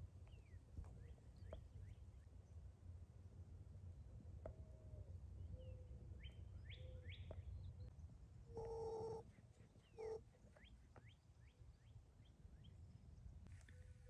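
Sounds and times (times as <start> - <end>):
small birds chirping: 5.5 - 13.7
bird calls held at one pitch: 8.5 - 11.9.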